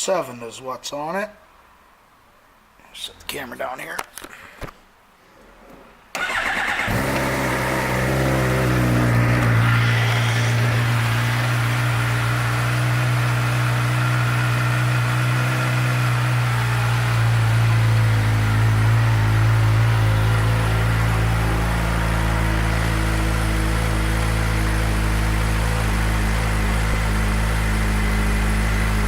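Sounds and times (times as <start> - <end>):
motorcycle engine idling: 6.3 - 29.0.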